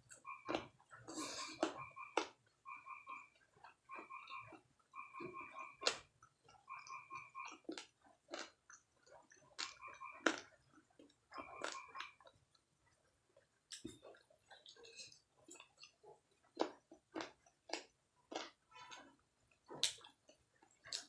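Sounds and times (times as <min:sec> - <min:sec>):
chewing and mouth sounds: 0:00.0 - 0:21.0
wet smacks and clicks: 0:19.7 - 0:20.2.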